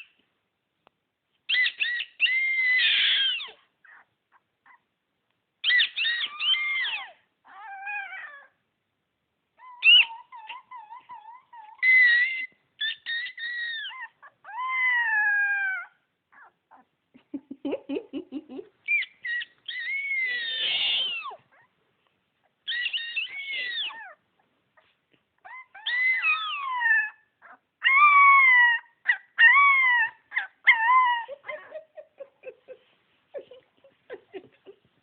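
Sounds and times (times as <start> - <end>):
pet crying high-pitched calls: 1.5 - 4.1, 5.6 - 8.6, 9.6 - 16.9, 18.9 - 21.7, 22.6 - 24.2, 25.4 - 31.7.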